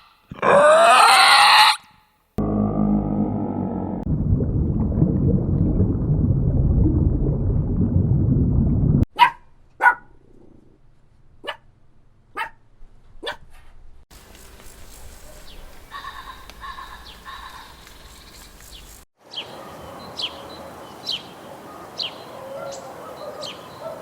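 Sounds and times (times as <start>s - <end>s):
dog barking: 9.1s - 10.1s, 12.3s - 12.6s, 21.6s - 24.0s.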